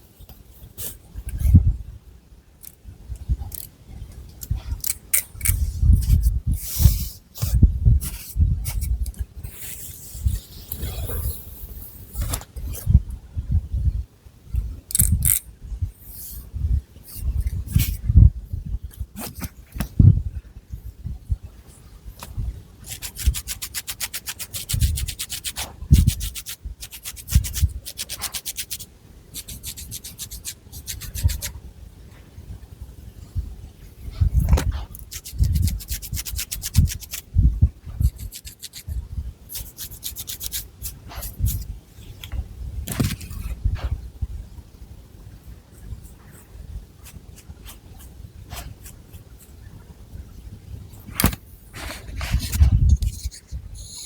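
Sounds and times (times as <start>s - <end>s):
fingernails scratching hair and scalp: 22.9s - 31.6s, 34.9s - 37.2s, 38.0s - 41.7s, 47.0s - 49.5s, 51.2s - 54.0s.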